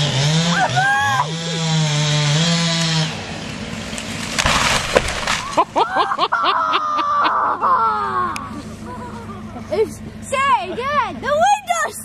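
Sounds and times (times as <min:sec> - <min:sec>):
chainsaw running at high revs: 0:00.0 - 0:05.3
wood cracking and splintering: 0:02.6 - 0:05.9.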